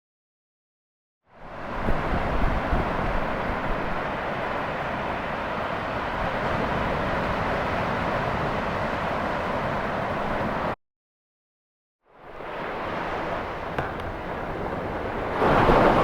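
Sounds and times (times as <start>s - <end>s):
wind on microphone: 1.4s - 8.8s
ocean surf rushing: 1.4s - 10.8s, 12.2s - 16.0s.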